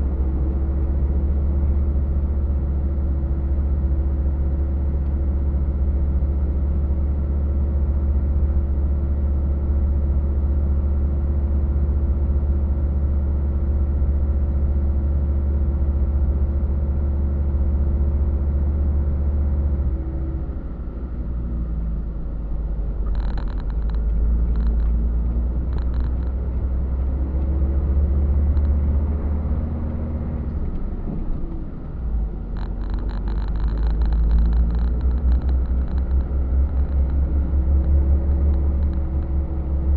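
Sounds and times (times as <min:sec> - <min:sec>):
truck engine droning: 0:18.0 - 0:39.9.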